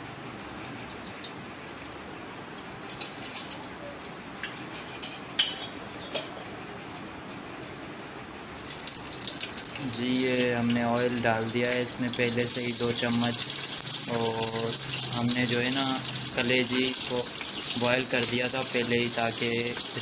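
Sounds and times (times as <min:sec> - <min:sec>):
meat sizzling on hot pan: 0:08.5 - 0:20.0
steady hiss: 0:08.5 - 0:20.0.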